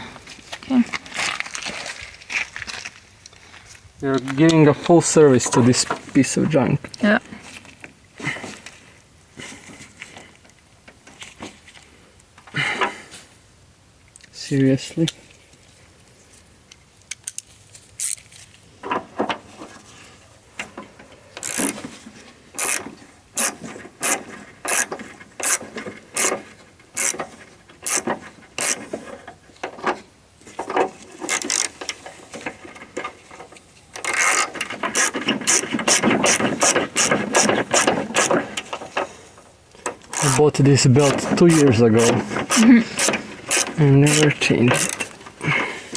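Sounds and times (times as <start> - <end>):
ratchet wrench clicking: 21.4 - 21.8, 22.6 - 22.8, 23.4 - 25.6, 27.0 - 27.2, 27.8 - 28.0, 31.3 - 31.9, 34.0 - 38.4, 40.0 - 40.4, 41.0 - 45.2.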